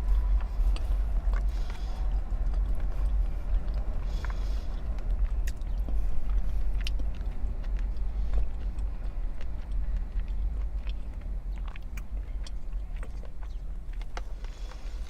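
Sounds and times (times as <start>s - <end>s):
low rumble: 0.0s - 15.0s
person chewing: 0.0s - 15.0s.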